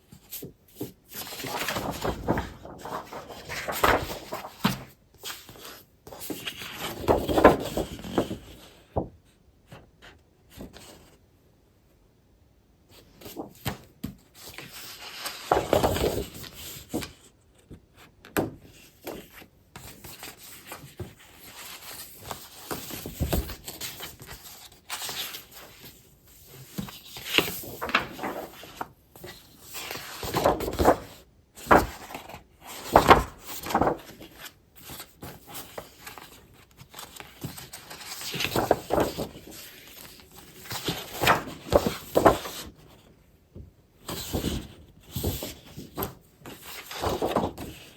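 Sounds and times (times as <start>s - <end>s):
paper and packaging rustling: 0.4s - 8.4s, 19.9s - 43.0s, 44.1s - 47.8s.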